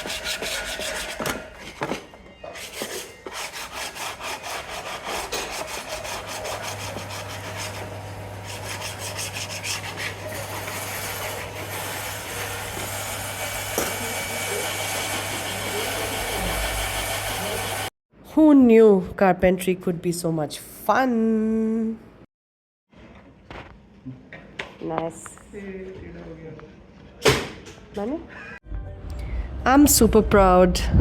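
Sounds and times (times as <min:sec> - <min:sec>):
hand tool on wood strokes: 0:00.0 - 0:17.7.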